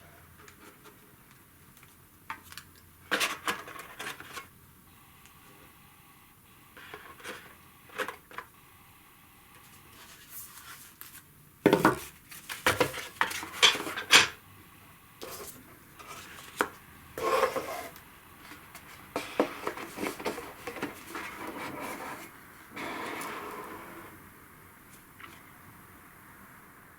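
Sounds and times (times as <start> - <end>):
cardboard rubbing and sliding: 15.2 - 24.2.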